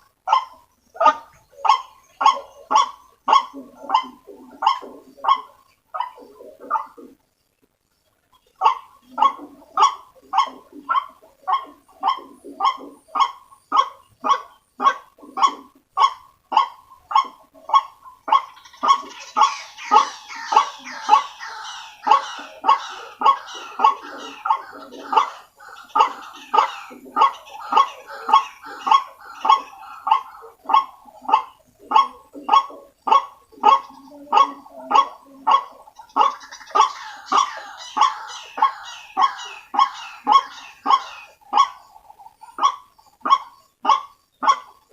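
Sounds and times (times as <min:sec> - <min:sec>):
bird croaking call: 0:08.4 - 0:44.9
high-pitched bird chatter: 0:15.2 - 0:44.9.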